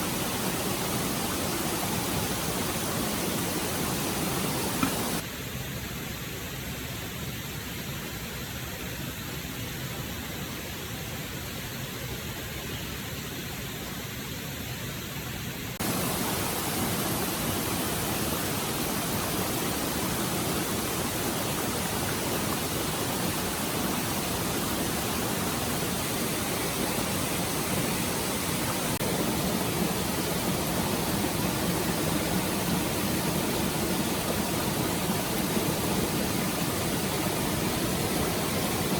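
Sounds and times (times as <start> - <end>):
forest stream rushing: 0.0 - 5.3, 15.8 - 38.9.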